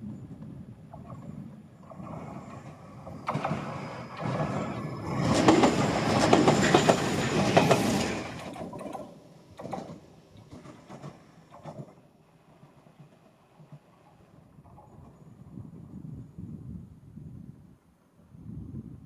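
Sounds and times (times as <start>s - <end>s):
electric train passing: 0.0s - 16.3s
wheels clicking over rail joints: 0.4s - 15.8s.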